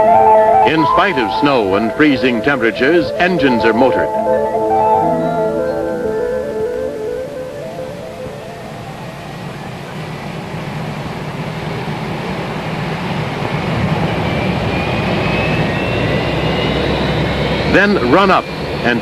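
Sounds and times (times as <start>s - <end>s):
rising engine whine: 0.0s - 18.8s
jet engine roar: 5.7s - 19.0s.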